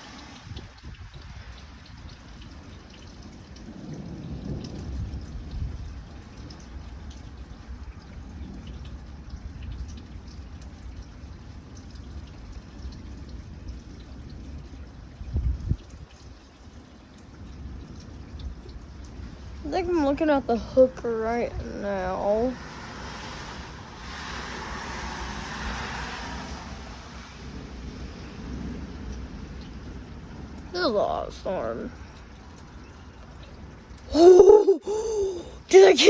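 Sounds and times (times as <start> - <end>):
rain dripping and trickling: 0.0 - 36.0.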